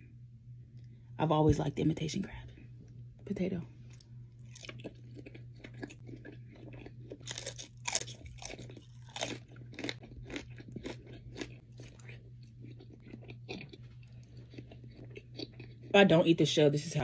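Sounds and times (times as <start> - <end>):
steady low hum: 0.0 - 17.0
person chewing crunchy food: 3.9 - 16.0.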